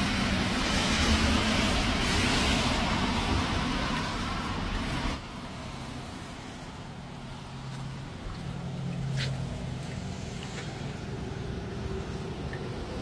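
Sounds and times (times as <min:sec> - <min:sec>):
tyres hissing on wet road: 0:00.0 - 0:08.0, 0:08.6 - 0:13.0
engine hum: 0:00.0 - 0:13.0.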